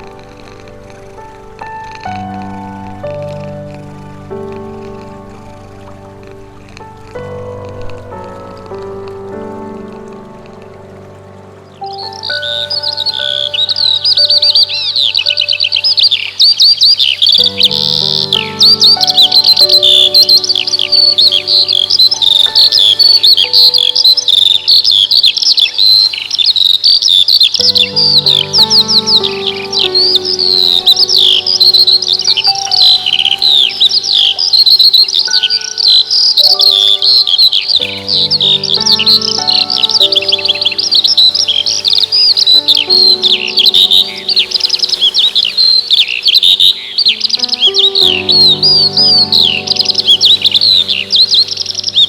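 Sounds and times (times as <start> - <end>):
soft sustained music chords: 0.0 - 52.0
songbirds chirping and whistling: 10.8 - 52.0.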